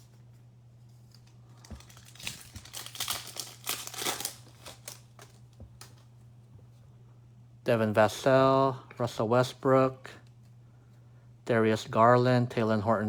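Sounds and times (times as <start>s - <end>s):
plastic wrapper crinkling: 1.0s - 6.0s.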